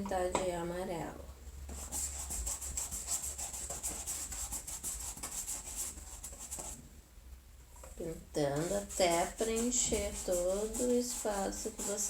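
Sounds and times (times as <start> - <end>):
paintbrush scrubbing on cardboard: 1.8 - 6.8, 8.6 - 12.0.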